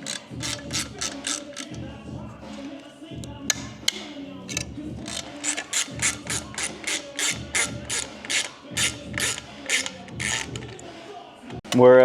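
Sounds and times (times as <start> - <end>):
ratcheting clicks: 0.0 - 1.8, 2.7 - 10.8.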